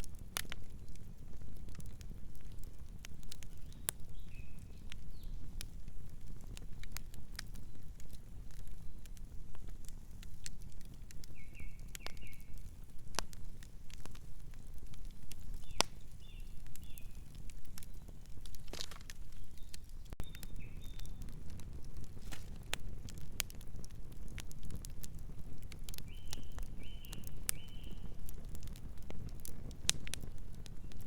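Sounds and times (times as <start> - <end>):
campfire flames rumbling: 0.0 - 31.0
wood crackling and popping: 0.0 - 31.0.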